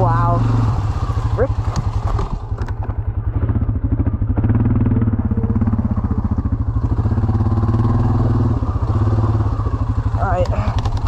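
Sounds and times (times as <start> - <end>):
atv engine running under load: 0.0 - 11.0.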